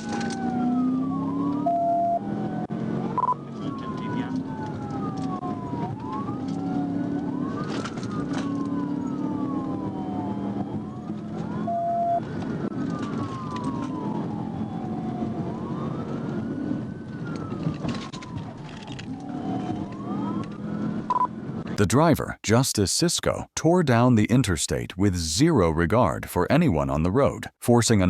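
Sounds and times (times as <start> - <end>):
police sirens wailing: 0.0 - 22.4
engine and road noise: 0.0 - 28.0.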